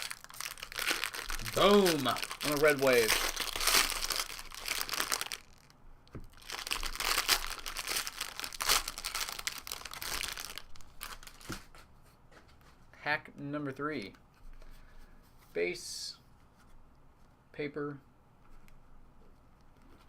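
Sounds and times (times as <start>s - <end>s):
card pack wrapper crinkling: 0.0s - 5.7s, 6.3s - 11.7s.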